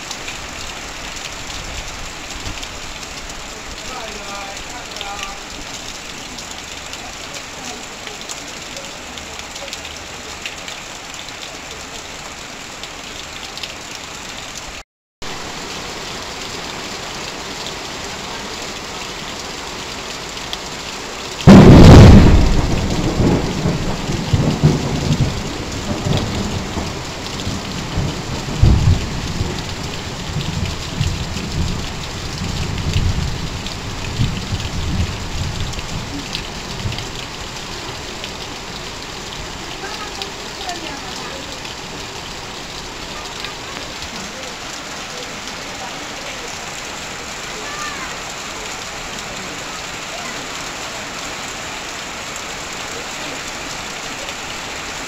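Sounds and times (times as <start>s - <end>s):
heavy rain on metal roof: 0.0s - 55.0s
water pouring off roof: 0.0s - 55.0s
thunder: 21.4s - 29.6s.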